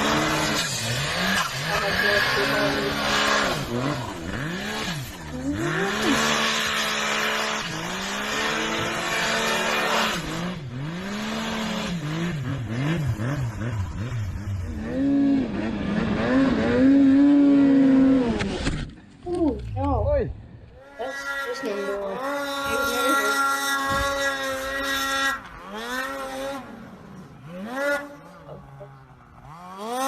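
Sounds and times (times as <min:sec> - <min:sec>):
snowmobile engines revving: 0:00.0 - 0:18.8, 0:19.5 - 0:30.0.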